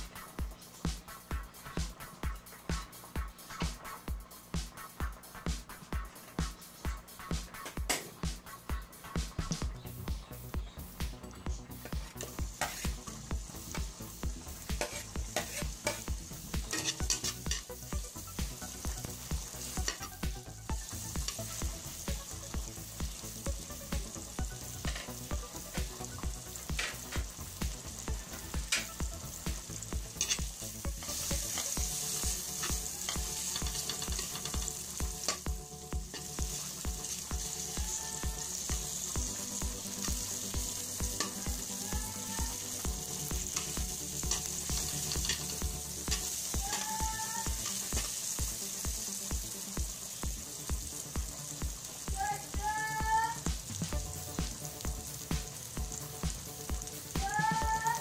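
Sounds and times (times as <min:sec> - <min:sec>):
onion sizzling in hot oil: 0:09.0 - 0:58.0
metal spoon stirring in pan: 0:12.0 - 0:14.0, 0:14.6 - 0:17.8, 0:18.6 - 0:20.2, 0:30.0 - 0:41.7, 0:42.8 - 0:49.2.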